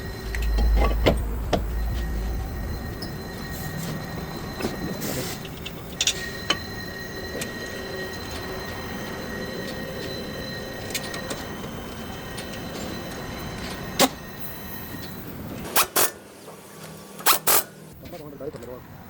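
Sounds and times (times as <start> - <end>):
low rumble: 0.0 - 6.6
faint hum: 0.0 - 15.6.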